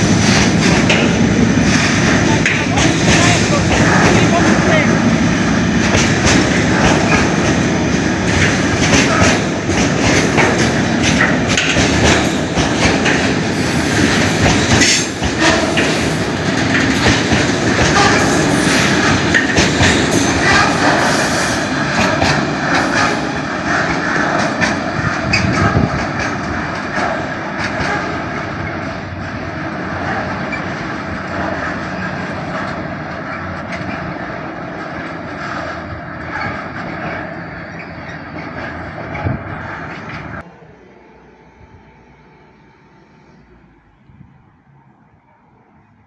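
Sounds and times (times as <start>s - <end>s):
wheels clicking over rail joints: 0.0s - 29.0s, 30.0s - 40.5s
train rolling along track: 0.0s - 46.0s
high-pitched wheel squeal: 12.2s - 23.5s.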